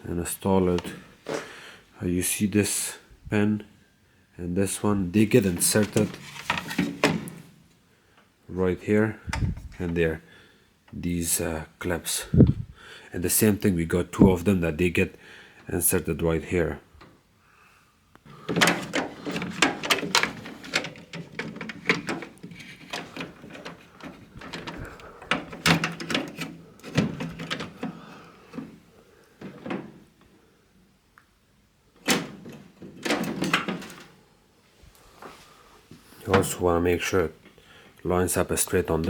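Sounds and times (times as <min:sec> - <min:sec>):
plastic parts clicking and knocking: 0:05.6 - 0:07.5, 0:18.3 - 0:30.3, 0:32.0 - 0:34.2.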